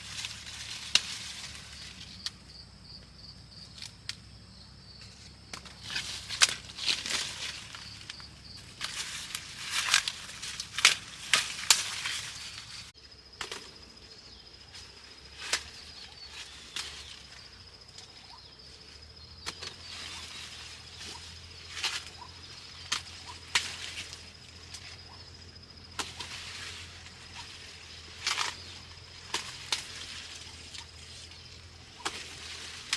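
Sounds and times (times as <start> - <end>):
sharp rustles and snaps: 5.5 - 12.6, 28.2 - 31.4.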